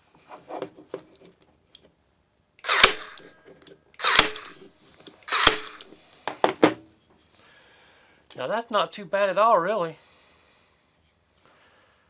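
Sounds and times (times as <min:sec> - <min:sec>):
staple gun firing: 0:02.7 - 0:03.3, 0:04.0 - 0:04.7, 0:05.3 - 0:06.0
small clicks: 0:02.7 - 0:06.0.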